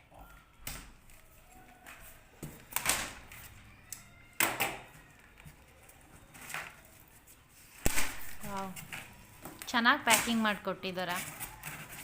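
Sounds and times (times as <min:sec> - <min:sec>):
packaging rustling and scraping: 0:04.9 - 0:12.0.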